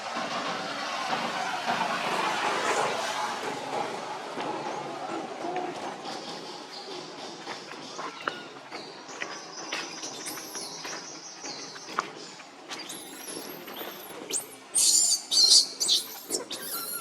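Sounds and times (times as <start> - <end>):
baby monkey squealing: 12.8 - 17.0.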